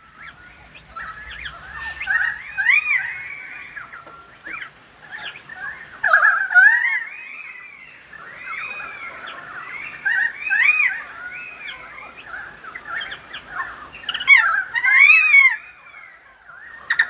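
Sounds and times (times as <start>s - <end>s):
bird singing warbled notes: 0.0s - 5.8s.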